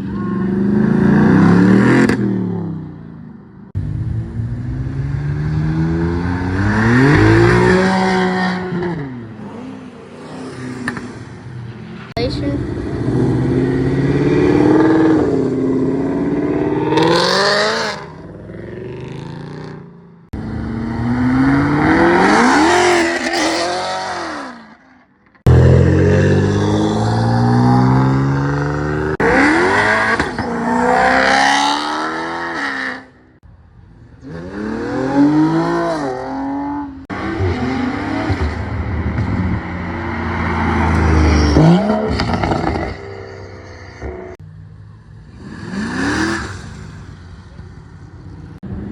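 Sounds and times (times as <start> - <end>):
cars accelerating hard: 4.1 - 11.4, 20.4 - 24.6, 25.5 - 33.2, 34.2 - 44.4.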